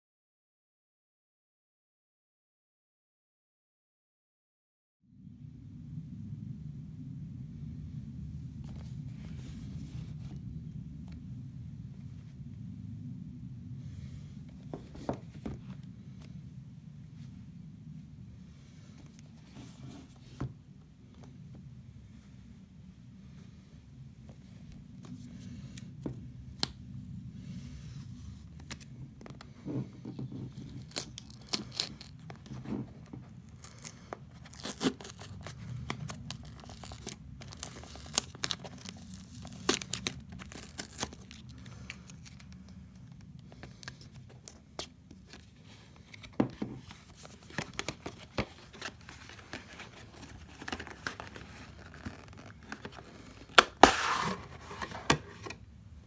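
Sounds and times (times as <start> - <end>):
packaging tearing and crinkling: 30.6 - 32.6, 33.4 - 42.4, 46.8 - 55.5.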